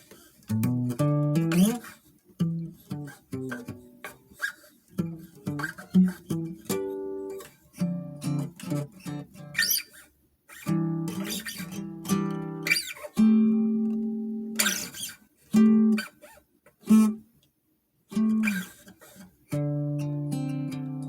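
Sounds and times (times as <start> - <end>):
acoustic guitar strummed chords: 19.5 - 21.0.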